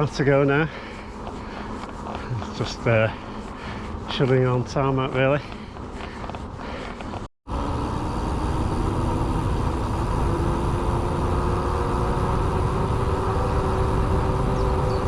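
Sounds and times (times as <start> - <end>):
constant hum: 0.0 - 15.0
wind rush on microphone: 5.4 - 15.0.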